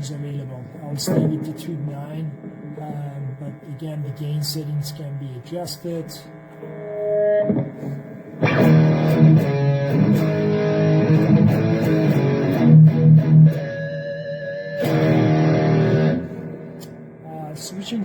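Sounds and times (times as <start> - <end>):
distorted guitar chords: 0.0 - 18.0
electric guitar single notes: 0.9 - 3.1, 6.5 - 18.0.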